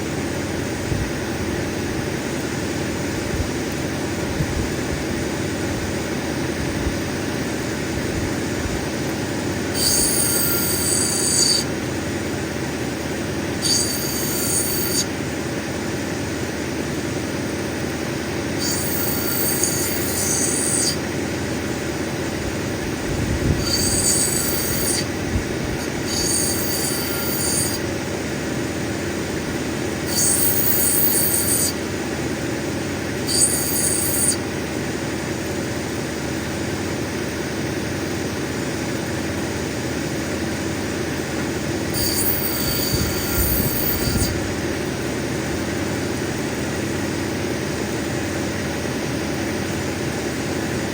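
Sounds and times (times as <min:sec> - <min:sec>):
grinding machine running: 0:00.0 - 0:50.9
high squealing on grinding wheel: 0:08.9 - 0:17.0, 0:17.6 - 0:35.8, 0:41.1 - 0:47.3.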